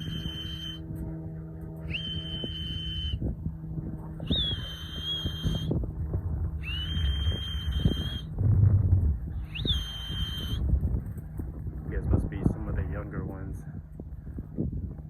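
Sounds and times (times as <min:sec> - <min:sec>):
person whistling a high note: 0:00.0 - 0:00.8, 0:01.9 - 0:03.2, 0:04.2 - 0:05.7, 0:06.6 - 0:08.3, 0:09.5 - 0:10.6
low rumbling noise: 0:00.0 - 0:15.0.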